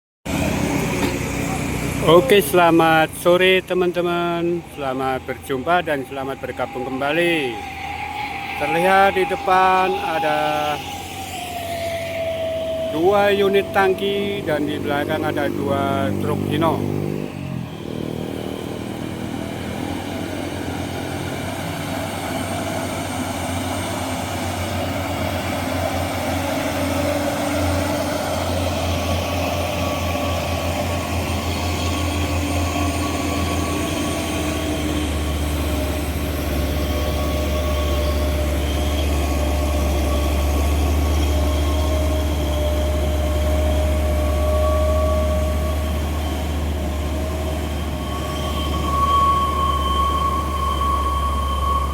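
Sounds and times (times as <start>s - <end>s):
diesel truck engine under load: 0.2s - 51.9s
steady whine: 0.4s - 51.9s.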